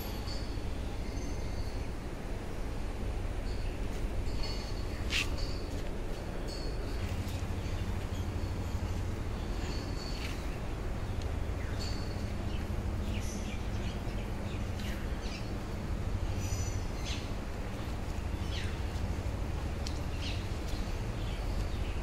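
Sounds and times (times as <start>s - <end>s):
steady low rumble: 0.0s - 22.0s
small birds chirping: 7.3s - 19.1s, 19.8s - 22.0s.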